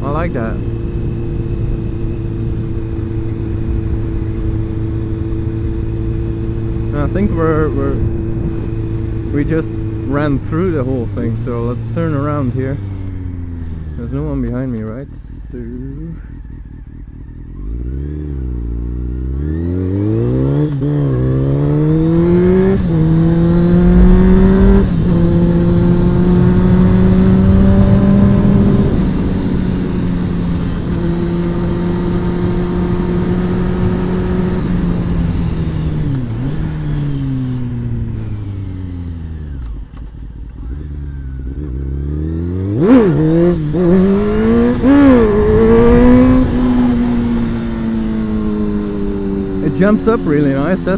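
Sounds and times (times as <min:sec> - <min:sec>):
wind rushing over microphone: 0:00.0 - 0:10.4, 0:21.0 - 0:38.5, 0:42.7 - 0:49.7
motorcycle engine accelerating: 0:00.0 - 0:50.9.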